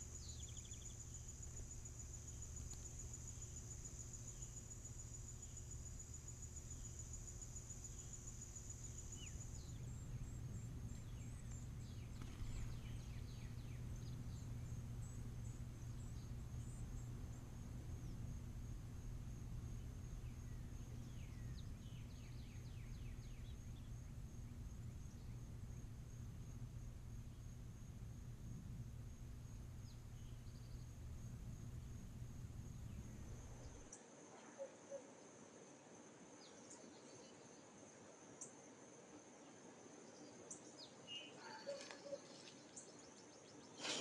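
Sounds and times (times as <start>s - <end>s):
low steady hum: 0.0s - 34.4s
insects trilling: 0.0s - 44.0s
thin downward-sliding bird calls: 41.3s - 42.8s.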